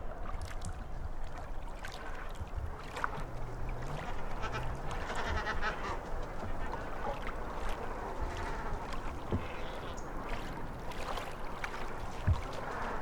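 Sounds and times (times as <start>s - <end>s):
water noise: 0.0s - 13.0s
waterfowl honking: 3.6s - 10.0s.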